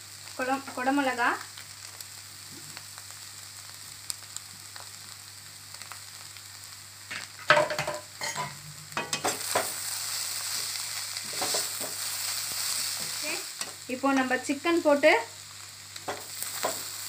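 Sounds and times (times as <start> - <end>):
vegetables sizzling in a pan: 0.0 - 17.0
spatula scraping a pan: 10.4 - 13.8.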